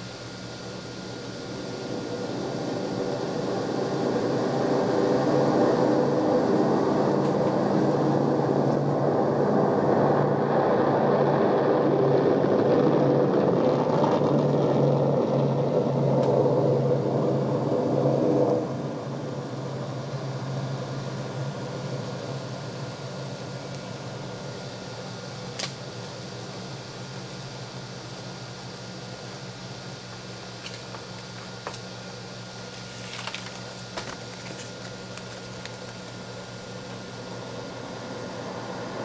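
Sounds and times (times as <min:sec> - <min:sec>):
mechanical rumble with low hum: 0:00.0 - 0:39.0.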